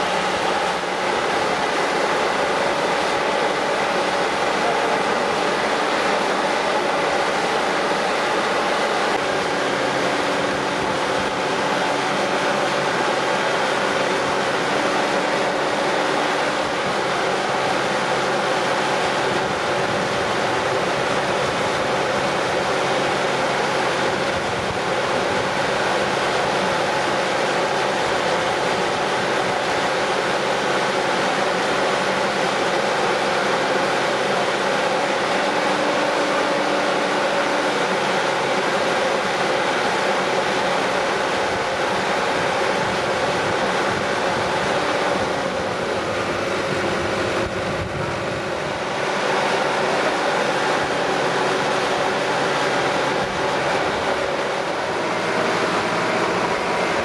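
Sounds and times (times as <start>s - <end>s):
machinery engine hum: 0.0s - 57.0s.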